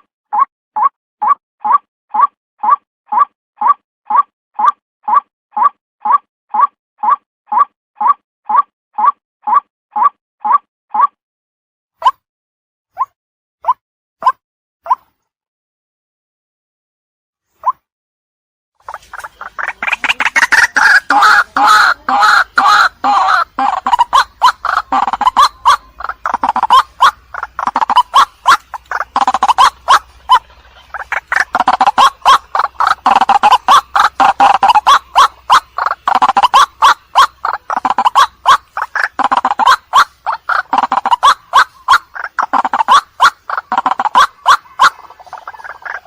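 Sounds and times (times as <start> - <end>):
bird croaking call: 18.8 - 46.0.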